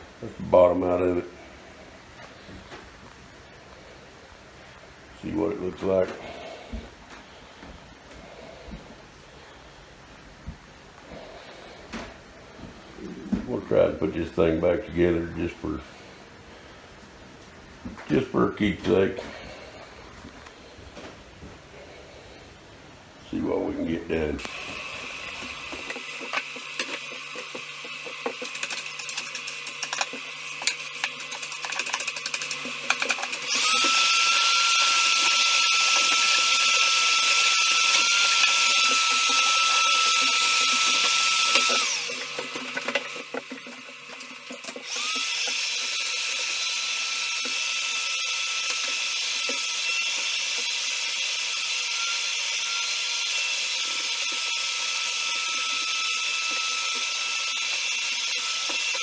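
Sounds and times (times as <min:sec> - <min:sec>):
power tool high whine: 0:24.4 - 0:59.0.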